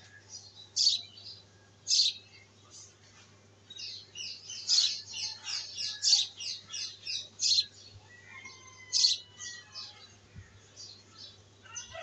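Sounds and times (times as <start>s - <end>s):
small bird chirping: 0.4s - 2.5s, 3.7s - 7.8s.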